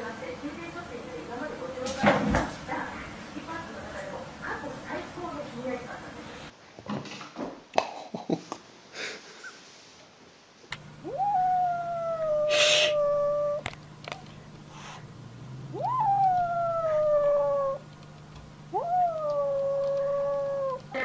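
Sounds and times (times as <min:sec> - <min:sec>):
dog howling: 0:11.0 - 0:13.7, 0:15.5 - 0:17.9, 0:18.7 - 0:21.0
brief hiss of noise: 0:12.5 - 0:13.0.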